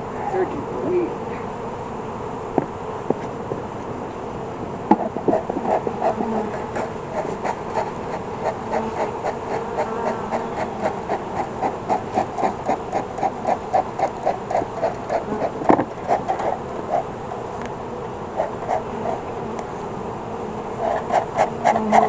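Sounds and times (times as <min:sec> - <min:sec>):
honeybees buzzing: 0:00.0 - 0:22.0
rapid rhythmic pulsing: 0:05.3 - 0:17.1.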